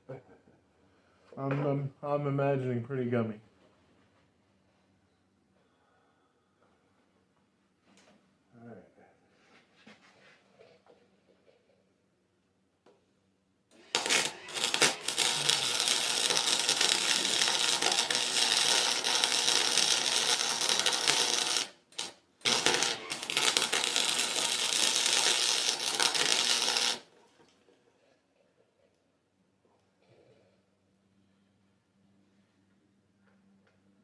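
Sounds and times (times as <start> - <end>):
welder crackling: 13.8 - 27.1.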